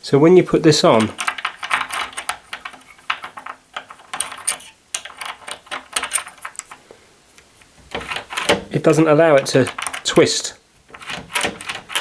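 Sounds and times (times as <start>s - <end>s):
metal door latch clicking and rattling: 1.0s - 6.8s, 7.8s - 10.2s, 10.8s - 12.0s.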